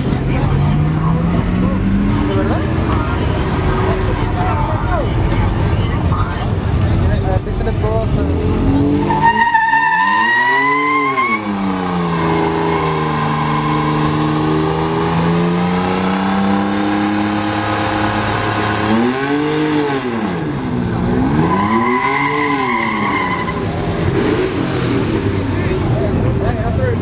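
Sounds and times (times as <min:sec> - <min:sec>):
truck engine revving: 0:00.0 - 0:27.0
tyres squealing: 0:08.8 - 0:14.6, 0:21.3 - 0:24.0.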